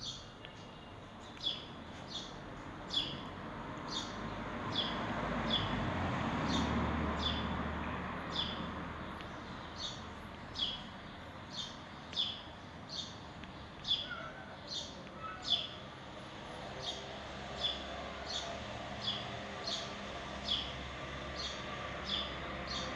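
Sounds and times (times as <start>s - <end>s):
small bird chirping: 0.0s - 5.7s, 8.3s - 15.9s.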